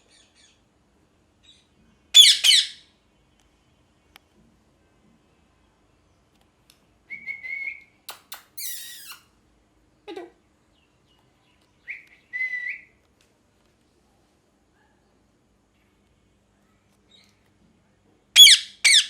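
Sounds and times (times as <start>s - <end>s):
parrot whistled calls: 2.2s - 2.8s, 7.1s - 9.3s, 18.4s - 19.0s
parrot clicks: 8.1s - 8.6s
parrot harsh screech: 8.6s - 9.3s.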